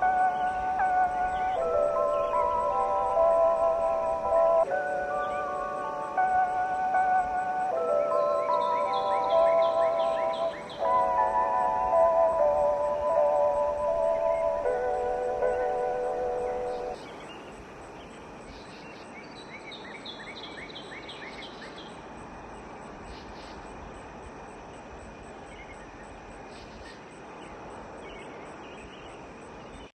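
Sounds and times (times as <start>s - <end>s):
ambient music chords: 0.0s - 17.0s
faint high pulsing: 0.0s - 17.0s
bird chirping: 0.0s - 22.0s
background ambience hiss: 0.0s - 29.9s.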